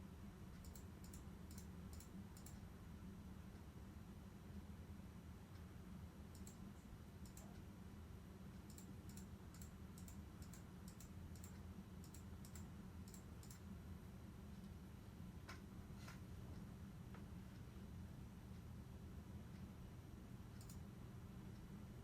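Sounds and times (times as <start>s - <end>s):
low steady hum: 0.0s - 22.0s
sharp light clicks: 0.6s - 2.6s, 6.3s - 6.6s, 7.2s - 7.6s, 8.7s - 13.6s, 20.6s - 20.8s.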